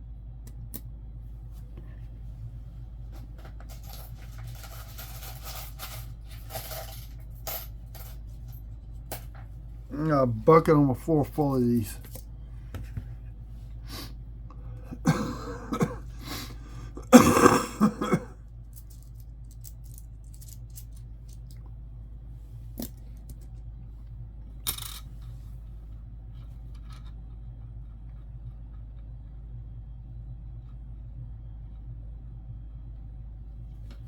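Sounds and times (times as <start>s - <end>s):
steady low hum: 0.0s - 34.0s
coins clicking: 3.6s - 9.4s, 17.8s - 21.6s, 24.6s - 25.1s
person coughing: 14.8s - 18.4s.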